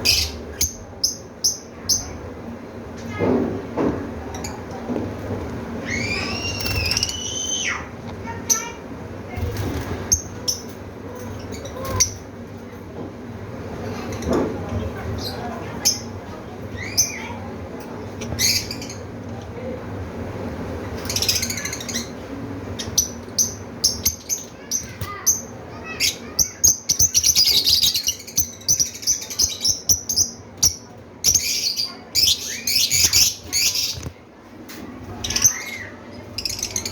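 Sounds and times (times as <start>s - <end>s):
lovebirds chirping and squawking: 0.0s - 3.2s, 5.8s - 12.4s, 15.0s - 17.5s, 18.2s - 19.2s, 21.0s - 34.2s, 35.1s - 36.9s.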